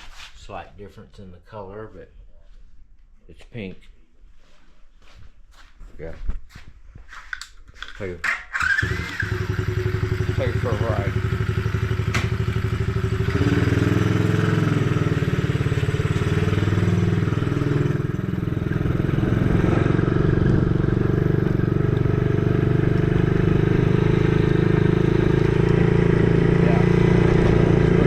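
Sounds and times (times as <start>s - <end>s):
small dirt bike engine running: 8.5s - 28.0s.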